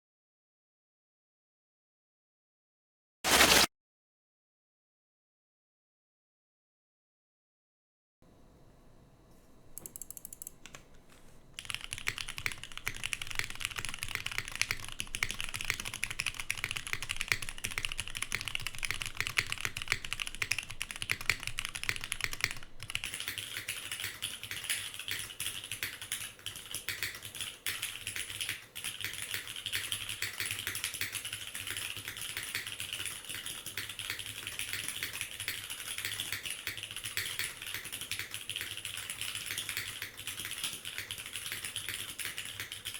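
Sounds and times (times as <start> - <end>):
fast mechanical keyboard typing: 9.8 - 10.8, 11.6 - 42.9.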